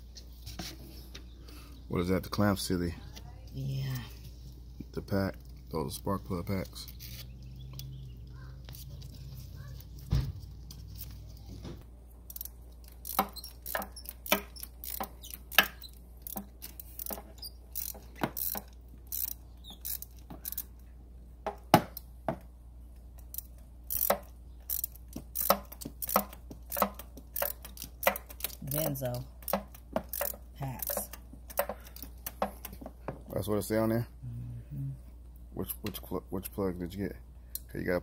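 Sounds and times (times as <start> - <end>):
low steady hum: 0.0 - 38.0
tools clicking on car engine: 12.2 - 20.8, 22.9 - 32.9.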